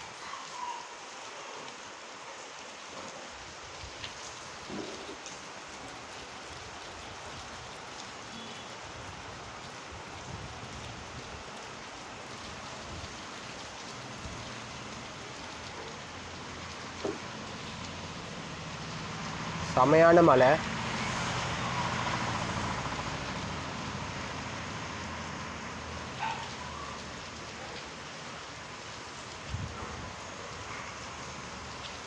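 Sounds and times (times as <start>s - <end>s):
heavy rain: 0.0s - 32.0s
faint drips and taps: 16.6s - 18.0s.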